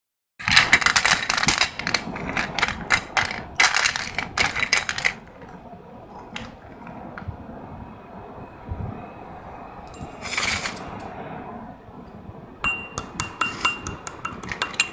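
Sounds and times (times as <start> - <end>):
slate pencils crunching and snapping: 0.4 - 5.5.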